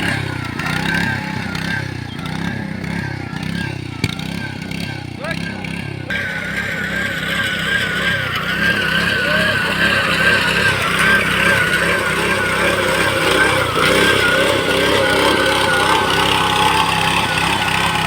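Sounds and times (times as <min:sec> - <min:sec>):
harvester engine running: 0:00.0 - 0:18.0
wavering high whine: 0:06.1 - 0:18.0.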